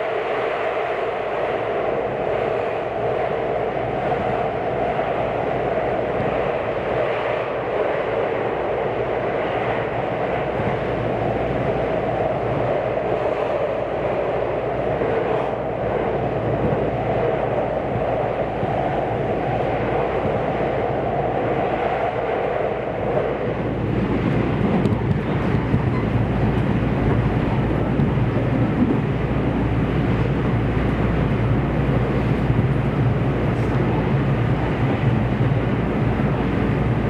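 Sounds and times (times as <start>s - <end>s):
train wheels on rail: 0.0s - 37.0s.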